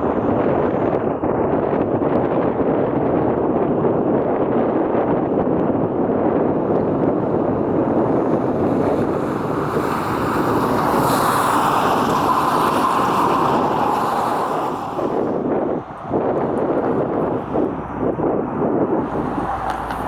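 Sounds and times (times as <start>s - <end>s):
jet airliner passing: 6.4s - 20.0s.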